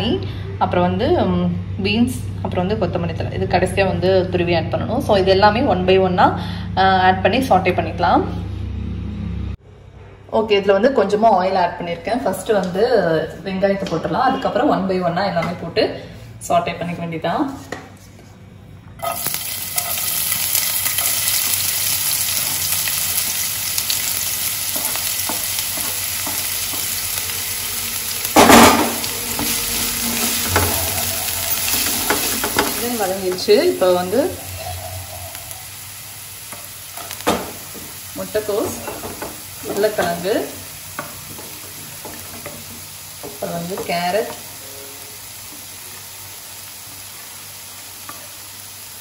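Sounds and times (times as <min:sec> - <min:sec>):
vegetables sizzling in oil: 0:19.0 - 0:49.0.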